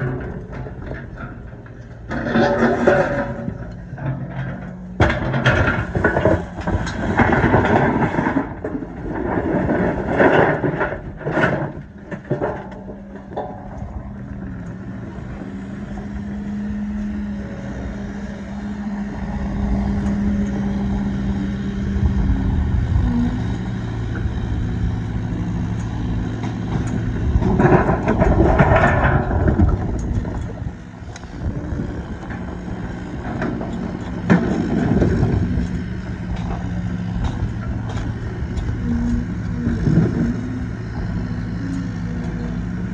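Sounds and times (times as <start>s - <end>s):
diesel engine running: 0.0s - 42.9s
sharp knocks and clatter: 2.1s - 14.1s, 33.2s - 38.7s.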